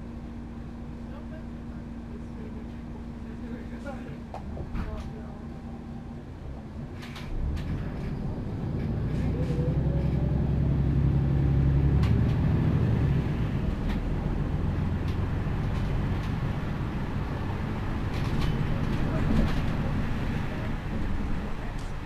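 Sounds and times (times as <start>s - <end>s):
bus diesel engine pulling away: 5.2s - 22.0s.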